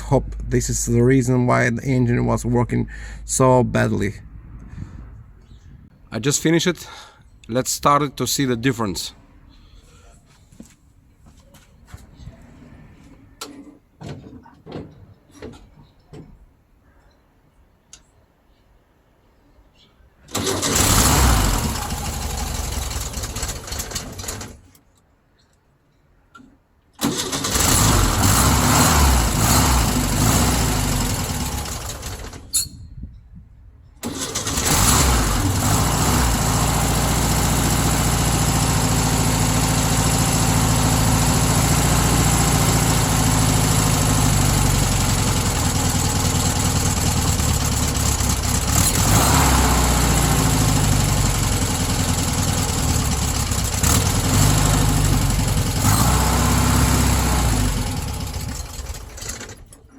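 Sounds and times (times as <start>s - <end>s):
air-cooled engine running: 20.3s - 24.6s, 27.0s - 32.4s, 34.0s - 59.7s.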